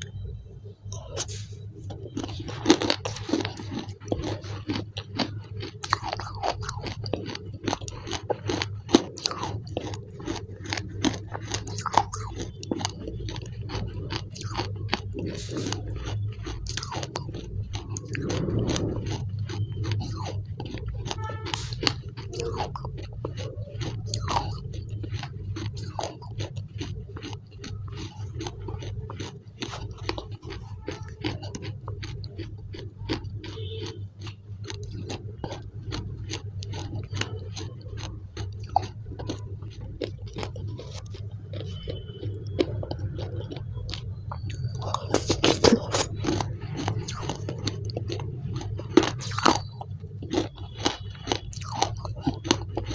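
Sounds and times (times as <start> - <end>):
steady low hum: 0.0 - 52.9
wet chewing clicks and smacks: 0.0 - 52.9.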